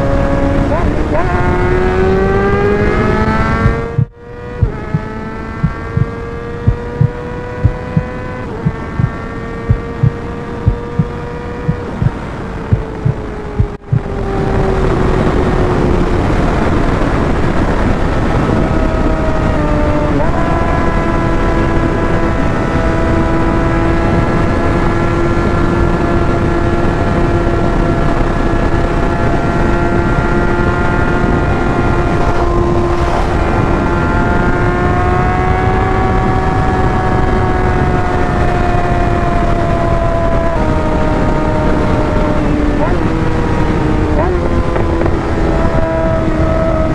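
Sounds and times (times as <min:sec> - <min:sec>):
motorcycle engine cruising: 0:00.0 - 0:46.9
rushing wind: 0:00.0 - 0:46.9.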